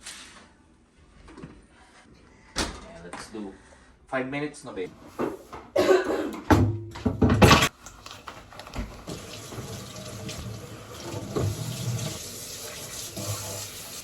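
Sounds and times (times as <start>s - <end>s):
water running from tap into sink: 8.6s - 14.0s.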